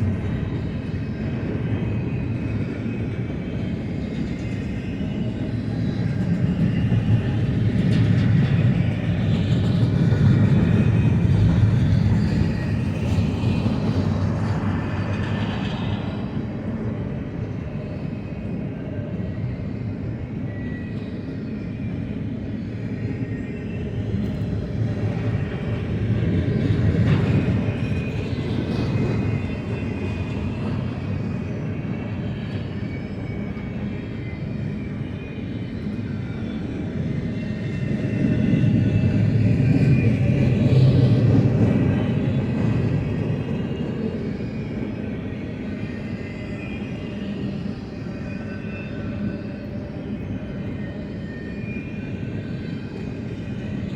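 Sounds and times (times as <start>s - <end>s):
steel wheels rumbling on rail: 22.2s - 47.0s.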